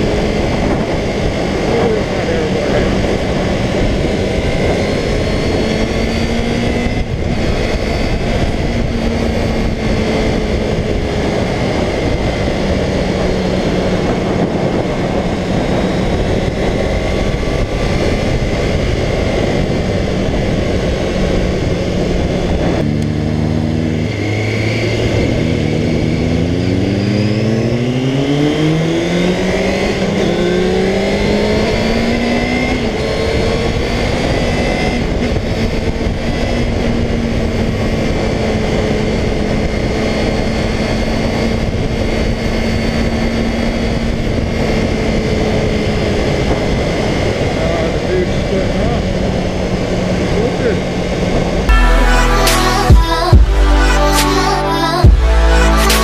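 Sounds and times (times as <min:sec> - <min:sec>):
motorcycle engine running: 0:00.0 - 0:28.5
heavy wind noise: 0:00.0 - 0:51.8.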